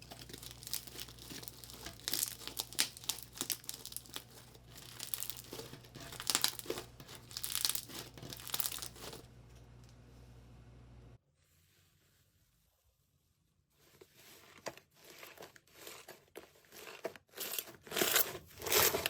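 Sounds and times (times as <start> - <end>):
slime crackling and popping: 0.0 - 9.2
low hum: 8.2 - 11.2.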